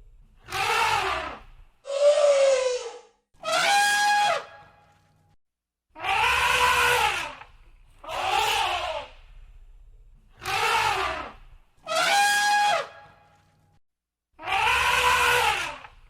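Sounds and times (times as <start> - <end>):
elephant trumpeting: 0.4 - 4.7, 6.0 - 7.4, 8.0 - 9.2, 10.4 - 13.4, 14.4 - 15.9.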